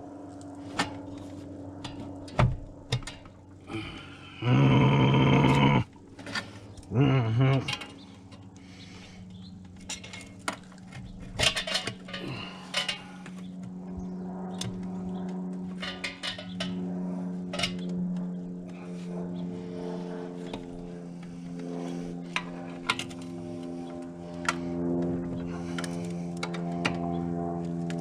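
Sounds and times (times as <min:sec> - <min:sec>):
steady low hum: 0:00.0 - 0:28.0
metal tools clinking and knocking: 0:07.6 - 0:08.4, 0:09.8 - 0:13.2, 0:15.8 - 0:16.8.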